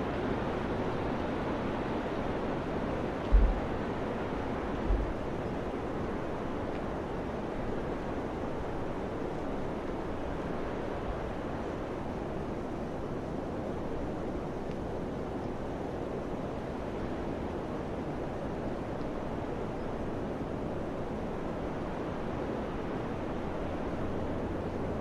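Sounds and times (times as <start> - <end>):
wind blowing: 3.0 - 5.5
low rumble: 3.3 - 3.8, 4.9 - 5.2.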